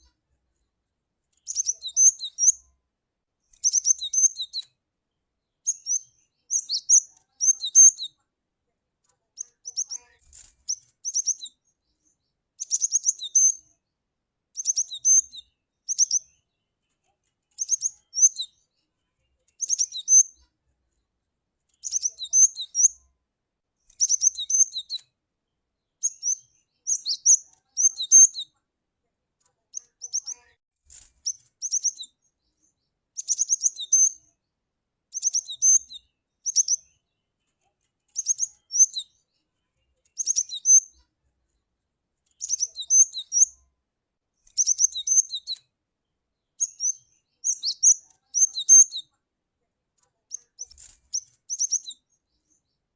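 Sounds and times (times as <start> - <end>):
bird chirping: 0.0 - 2.8, 3.4 - 8.3, 9.3 - 23.1, 23.8 - 28.6, 29.6 - 34.5, 35.1 - 41.6, 42.2 - 43.7, 44.4 - 49.2, 50.1 - 52.9.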